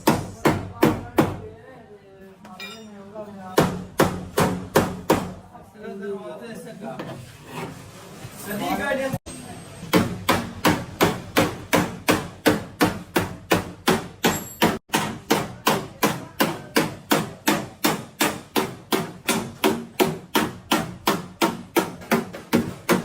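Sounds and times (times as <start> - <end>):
hammer blows on sheet metal: 9.8 - 23.0.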